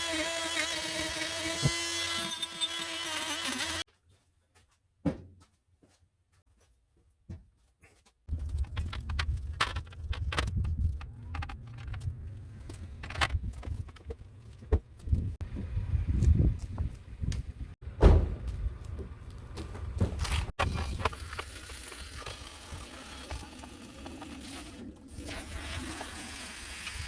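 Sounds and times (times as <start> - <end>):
power tool buzzing whine: 0.0 - 3.9.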